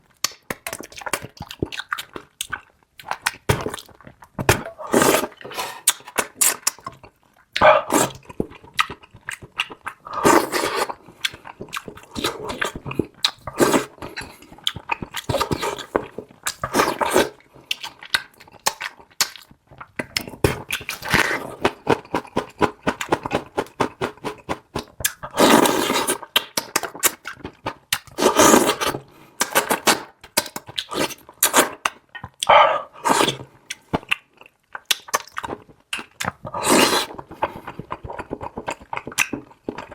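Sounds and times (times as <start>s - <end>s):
wet chewing: 0.1s - 39.9s
slurping: 3.6s - 6.8s, 7.6s - 18.0s, 19.9s - 27.3s, 28.0s - 30.1s, 30.7s - 33.5s, 36.2s - 39.8s.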